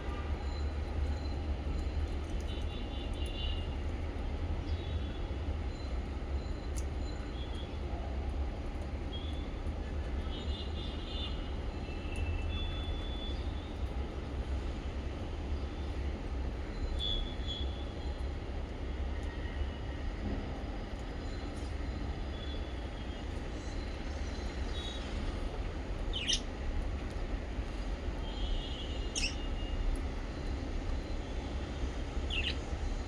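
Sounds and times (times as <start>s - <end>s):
small birds chirping: 26.1s - 26.5s, 29.0s - 29.7s, 32.3s - 32.7s.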